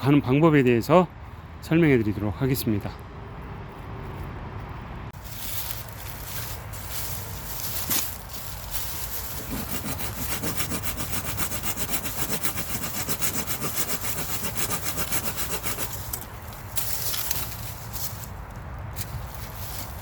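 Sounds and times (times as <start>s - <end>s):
hand saw cutting a branch: 7.8s - 17.4s.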